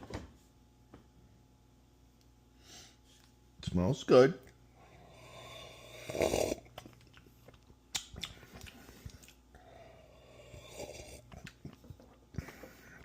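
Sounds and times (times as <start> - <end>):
person slurping coffee: 5.0 - 7.0, 10.0 - 13.0.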